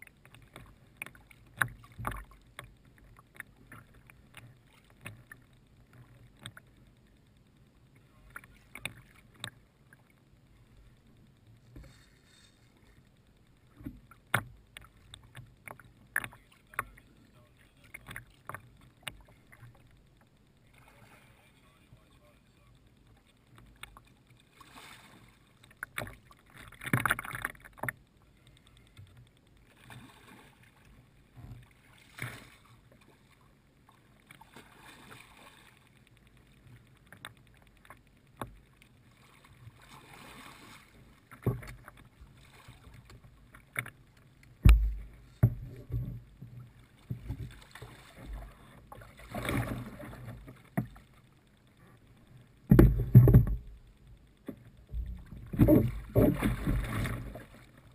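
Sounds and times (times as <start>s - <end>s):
water splashing against kayak: 0.0s - 57.9s
low thumps against hull: 44.6s - 47.6s, 52.6s - 57.5s.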